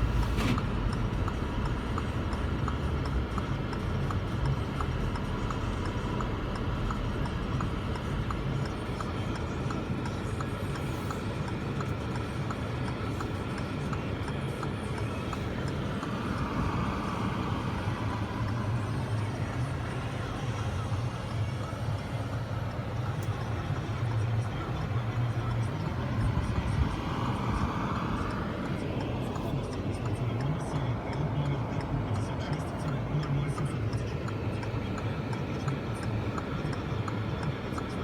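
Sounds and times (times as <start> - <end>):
light regular ticking: 0.0 - 38.0
blizzard wind: 12.9 - 30.2.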